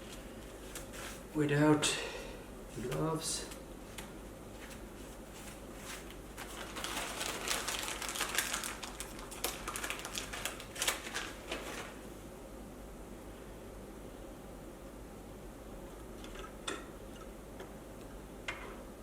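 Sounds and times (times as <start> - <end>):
plastic bag of cable ties rustling: 5.8 - 12.0.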